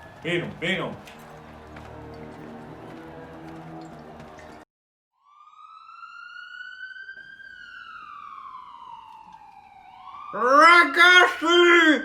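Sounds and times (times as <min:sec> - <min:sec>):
siren wail: 0:05.2 - 0:12.0.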